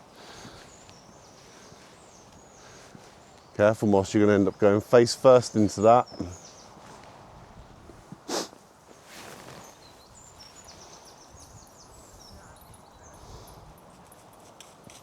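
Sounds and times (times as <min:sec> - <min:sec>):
soft rush of noise: 0:00.0 - 0:12.6
small birds chirping: 0:00.0 - 0:14.2.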